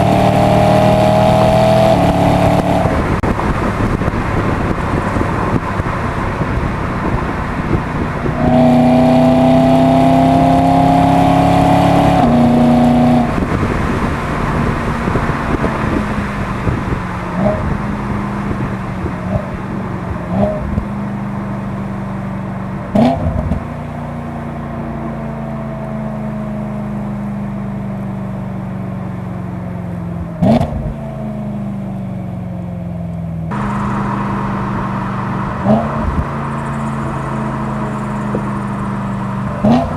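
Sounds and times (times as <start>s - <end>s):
car engine revving: 0.0s - 21.8s, 30.2s - 31.4s, 33.5s - 39.9s
exhaust cracks: 33.5s - 39.9s.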